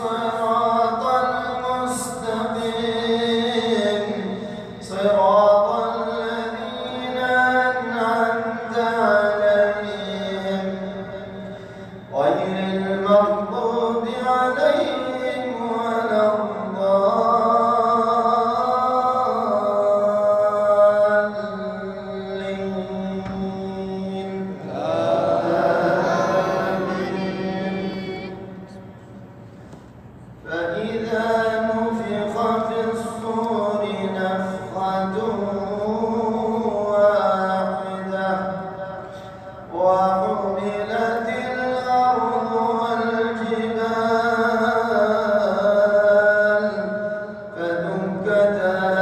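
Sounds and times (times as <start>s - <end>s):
man chanting melodic recitation: 0.0s - 28.8s, 30.4s - 49.0s.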